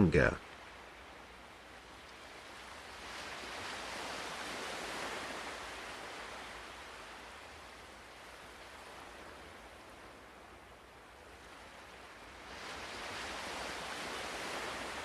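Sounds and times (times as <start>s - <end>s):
ocean waves washing in: 0.0s - 15.0s.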